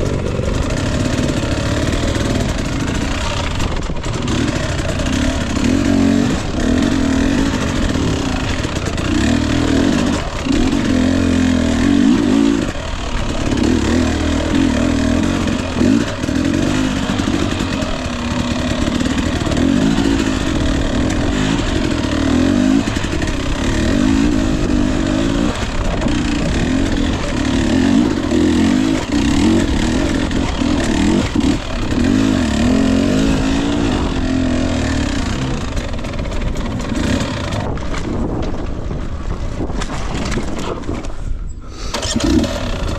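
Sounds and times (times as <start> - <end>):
dirt bike engine revving: 0.0 - 40.7, 41.7 - 42.9.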